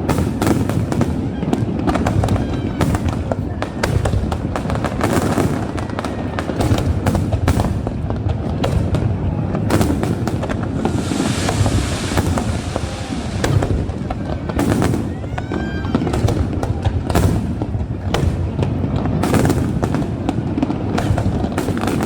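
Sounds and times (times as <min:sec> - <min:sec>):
fireworks bangs and crackles: 0:00.0 - 0:22.0
fireworks fizzing crackle: 0:00.0 - 0:22.0.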